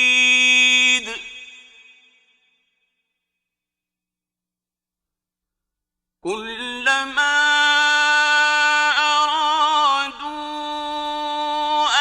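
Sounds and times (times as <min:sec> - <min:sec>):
man reciting in melodic chant: 0:00.0 - 0:01.8, 0:06.2 - 0:12.0.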